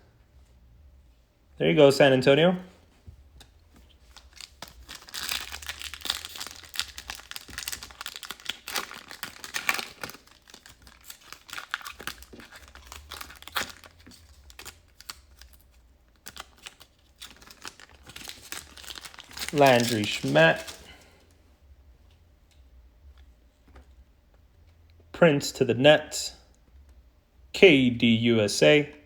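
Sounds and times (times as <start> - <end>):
wrapper crinkling: 3.8 - 21.2.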